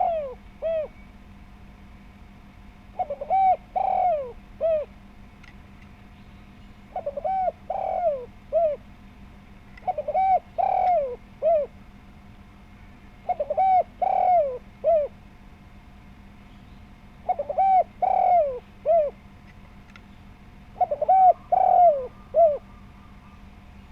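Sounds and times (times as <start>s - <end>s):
dove cooing: 0.0s - 1.0s, 2.9s - 5.0s, 6.9s - 8.9s, 9.8s - 11.8s, 13.2s - 15.3s, 17.2s - 19.2s, 20.7s - 23.4s
faint low hum: 0.0s - 23.9s.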